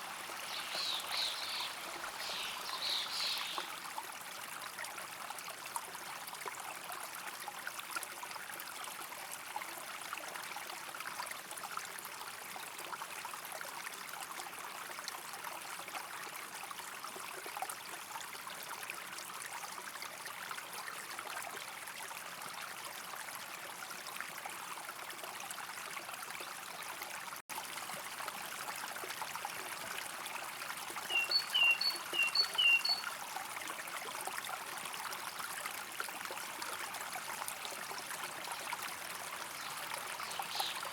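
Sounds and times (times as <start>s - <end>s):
stream trickling over stones: 0.0s - 40.9s
short high bird chirps: 31.1s - 33.0s.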